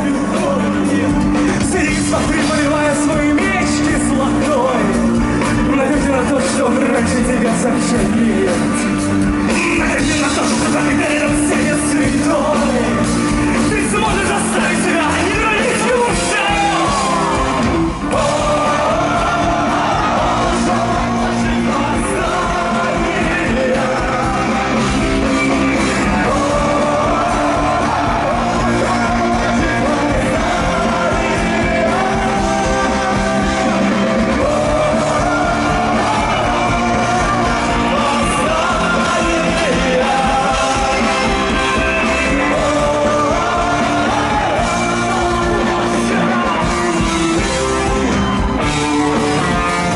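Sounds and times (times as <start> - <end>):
live rock band playing: 0.0 - 49.9
person singing and shouting: 13.6 - 47.1.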